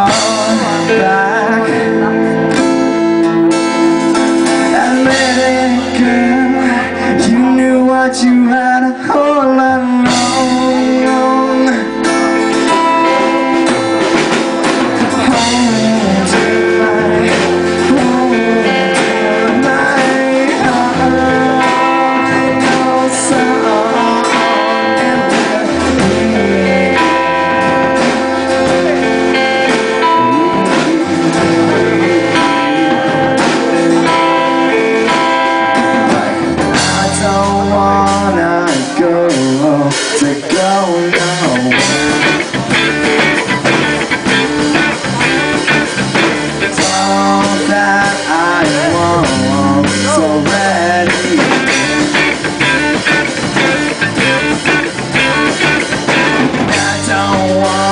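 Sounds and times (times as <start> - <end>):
live band instrumental: 0.0 - 57.9.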